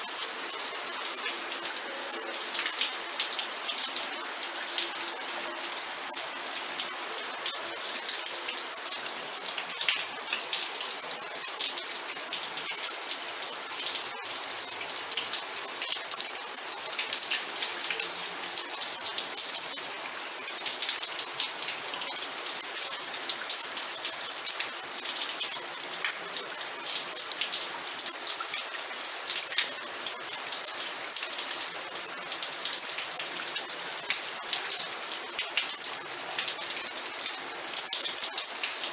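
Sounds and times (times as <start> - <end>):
raindrops pattering on a surface: 0.0 - 38.9.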